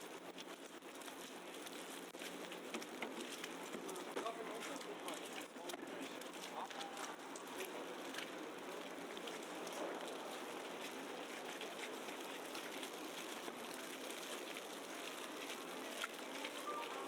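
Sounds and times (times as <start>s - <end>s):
hiss of wet snowy street: 6.1s - 17.0s.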